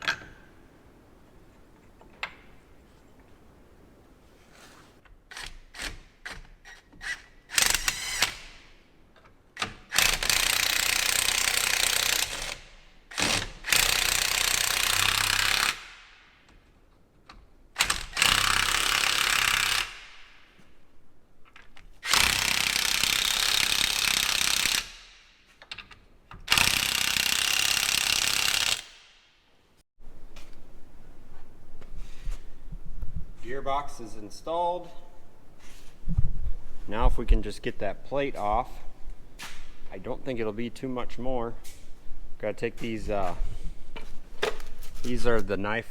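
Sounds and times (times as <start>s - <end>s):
impact wrench running: 9.8s - 15.9s, 22.0s - 25.1s, 26.5s - 29.1s.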